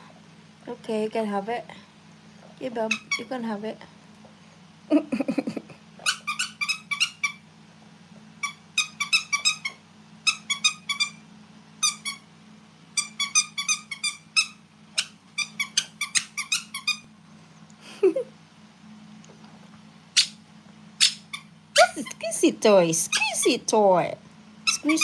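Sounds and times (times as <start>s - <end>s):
squeaky dog toy squeaking: 2.9s - 3.3s, 6.0s - 7.4s, 8.4s - 11.2s, 11.8s - 12.2s, 13.0s - 17.1s, 20.2s - 20.4s, 21.0s - 22.2s, 23.0s - 23.6s, 24.6s - 25.0s.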